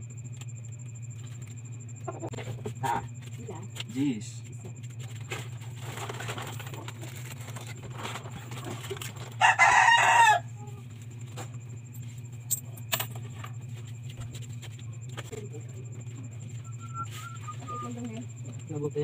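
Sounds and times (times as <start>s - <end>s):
steady low hum: 0.0s - 19.0s
rooster crowing: 9.2s - 10.8s.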